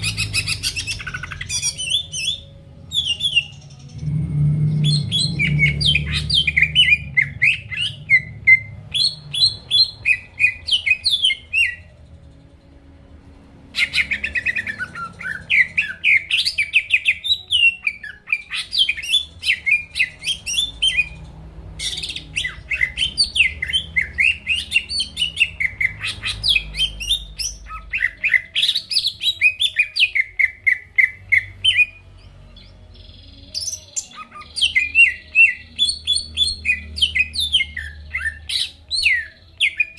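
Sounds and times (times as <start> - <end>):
bird chirping and whistling: 0.0 - 11.9, 13.8 - 21.2, 21.8 - 32.0, 33.0 - 39.9.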